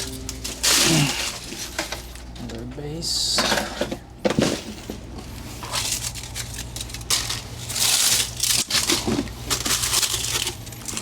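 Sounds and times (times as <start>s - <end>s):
dry plant debris crunching: 0.0s - 2.5s, 5.6s - 11.0s.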